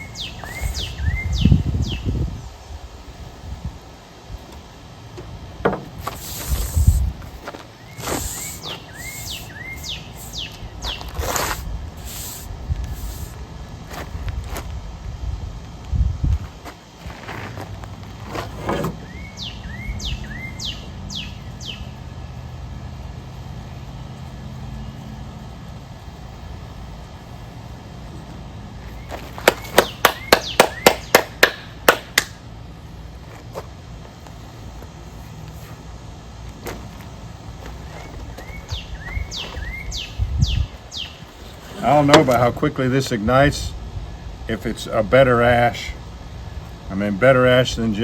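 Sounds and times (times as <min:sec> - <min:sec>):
bird calling sharp high notes: 0:00.0 - 0:02.0, 0:07.8 - 0:11.1, 0:29.5 - 0:31.7
bird whistling: 0:00.0 - 0:02.2, 0:07.8 - 0:11.2, 0:19.0 - 0:21.9, 0:29.0 - 0:31.2, 0:37.9 - 0:41.3
low outdoor rumble: 0:00.0 - 0:48.0
steady low hum: 0:00.0 - 0:48.0.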